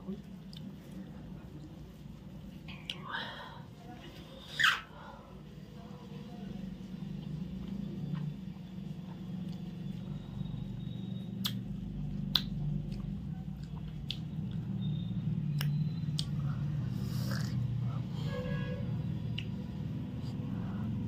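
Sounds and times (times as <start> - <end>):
steady low hum: 0.0 - 21.0
wet mouth clicks: 11.3 - 14.8, 15.5 - 16.4, 17.0 - 17.7, 19.3 - 19.6
person chewing: 11.4 - 14.6.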